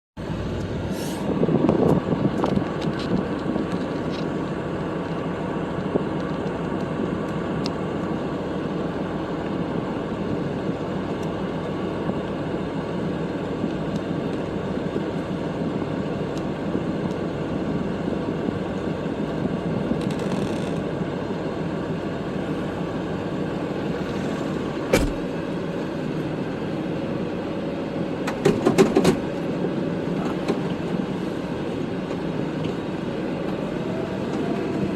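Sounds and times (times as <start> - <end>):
tractor diesel engine running: 0.2 - 20.0, 20.8 - 28.4, 29.2 - 34.9
clunks and knocks: 23.8 - 25.4.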